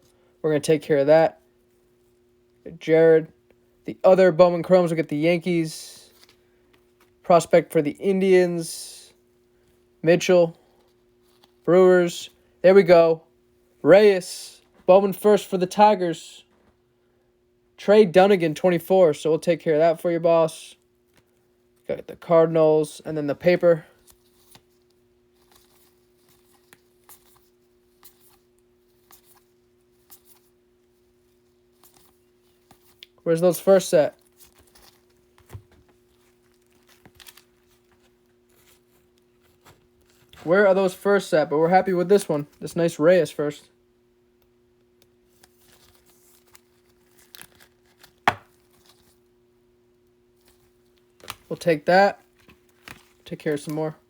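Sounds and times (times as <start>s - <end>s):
faint steady hum: 0.0s - 54.0s
trading cards handled: 23.5s - 41.0s, 44.4s - 49.3s, 50.4s - 54.0s.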